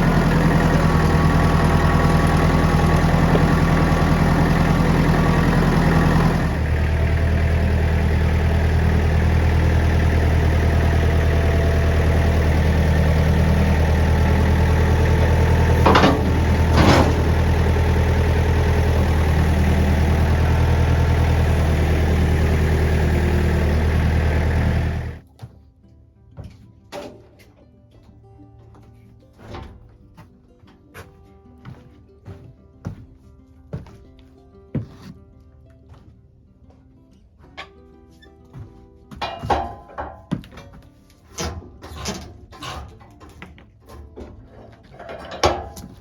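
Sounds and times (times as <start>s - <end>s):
engine idling: 0.0s - 25.2s.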